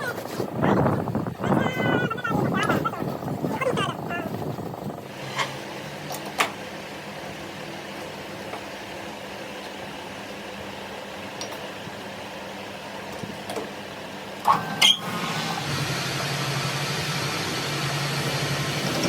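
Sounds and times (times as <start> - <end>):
machine humming: 15.0 - 19.0.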